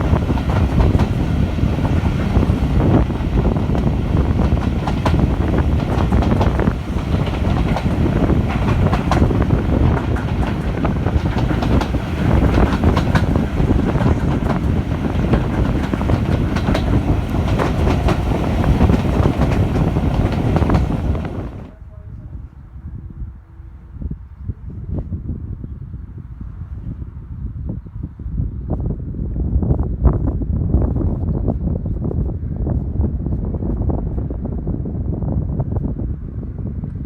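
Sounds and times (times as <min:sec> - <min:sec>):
train wheels rumbling on rails: 0:00.0 - 0:21.8
clicks over rail joints: 0:05.8 - 0:21.7.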